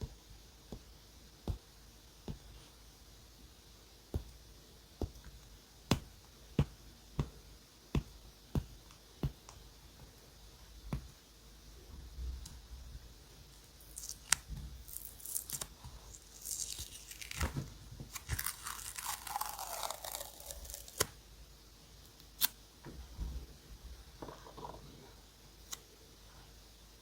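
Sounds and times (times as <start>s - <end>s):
paper tearing: 18.2s - 21.1s.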